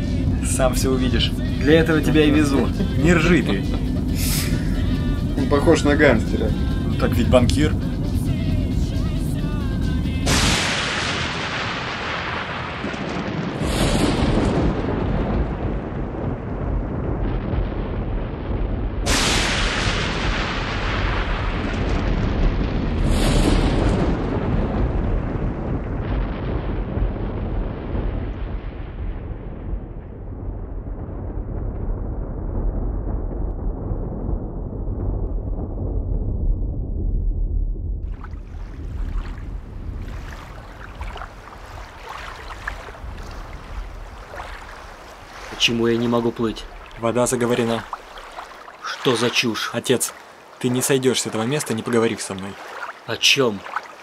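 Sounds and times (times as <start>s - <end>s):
water splashing and sloshing: 0.0s - 17.6s, 19.0s - 27.1s, 38.0s - 54.0s
wind buffeting microphone: 12.8s - 19.1s, 20.1s - 50.6s.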